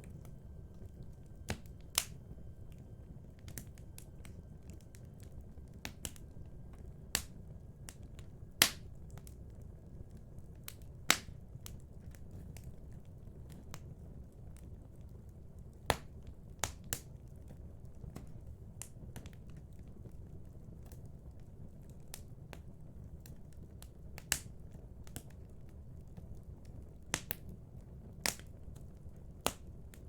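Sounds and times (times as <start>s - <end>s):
wood fire crackling: 0.0s - 30.0s
sharp pops of fire: 0.9s - 2.3s, 8.6s - 9.1s, 10.7s - 11.4s.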